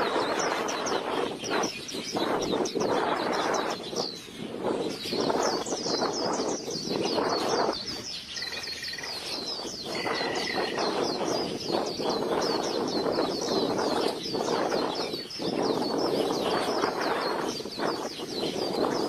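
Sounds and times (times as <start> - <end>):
bird chirping rapidly: 0.0 - 19.0
steady rushing noise: 0.0 - 19.0
bird whistled notes: 5.2 - 19.0.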